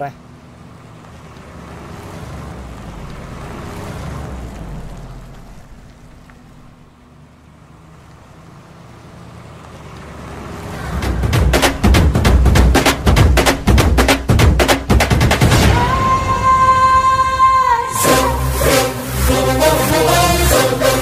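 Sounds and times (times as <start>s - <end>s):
racing car engines: 0.0s - 21.0s
fast loud drum hits: 11.0s - 16.0s.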